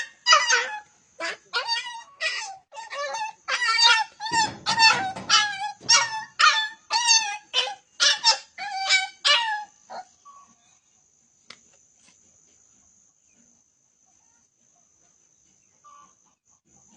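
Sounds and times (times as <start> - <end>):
puppy yelping: 0.0 - 10.4.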